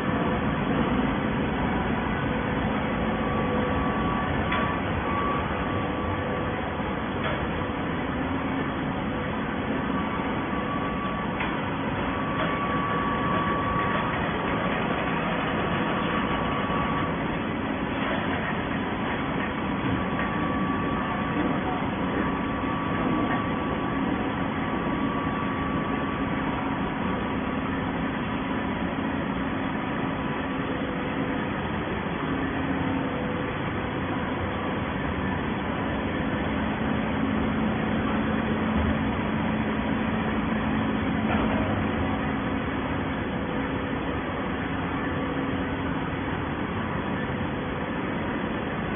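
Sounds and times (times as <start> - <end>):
baling press machine hum: 0.0 - 48.9.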